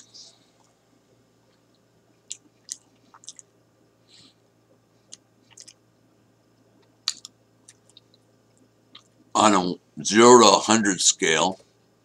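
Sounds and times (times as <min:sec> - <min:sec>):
man chewing: 0:01.5 - 0:03.5, 0:05.0 - 0:05.8, 0:06.8 - 0:08.2.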